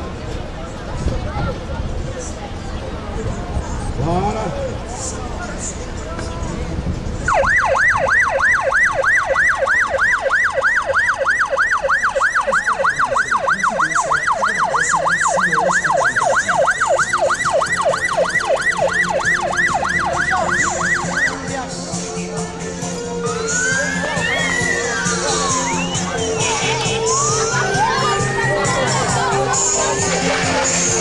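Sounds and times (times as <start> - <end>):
electronic siren fast yelp: 7.3 - 21.4, 23.2 - 28.9.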